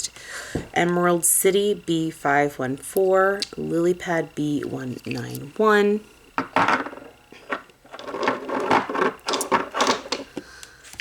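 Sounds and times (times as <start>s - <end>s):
small objects clicking and rattling: 6.4s - 11.0s.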